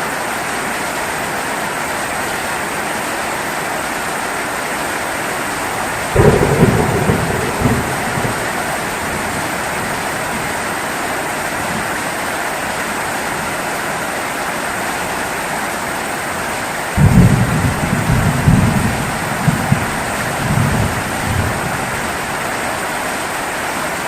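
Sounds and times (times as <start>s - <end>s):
heavy rain falling: 0.0s - 24.0s
low rumble of thunder: 5.9s - 10.6s, 17.0s - 22.5s.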